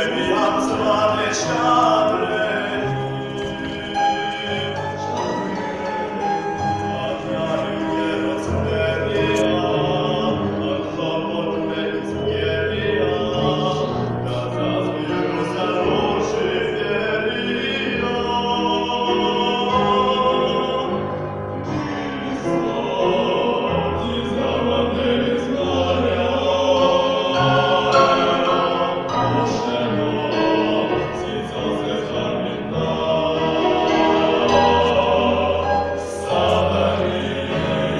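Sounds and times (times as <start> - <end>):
choir singing in parts: 0.0 - 37.9.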